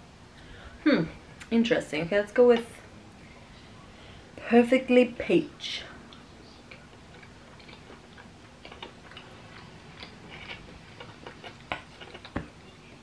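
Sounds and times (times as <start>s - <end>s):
person chewing: 6.1s - 12.6s.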